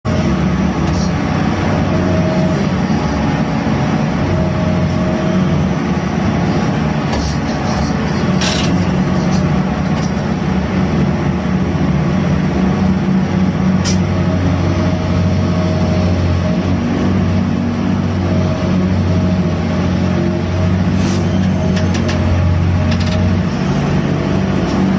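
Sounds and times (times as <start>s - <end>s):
crane machinery running: 0.1s - 24.9s.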